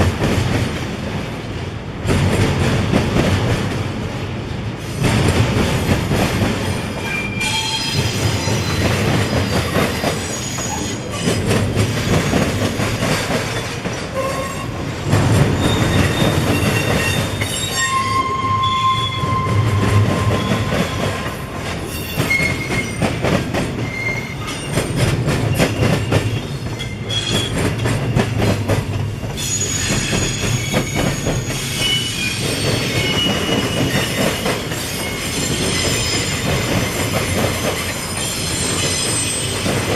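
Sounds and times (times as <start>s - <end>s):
train wheels clacking on rails: 0.0s - 39.9s
high-pitched wheel squeals: 7.0s - 11.4s, 15.6s - 21.0s, 21.9s - 23.0s, 29.4s - 34.2s.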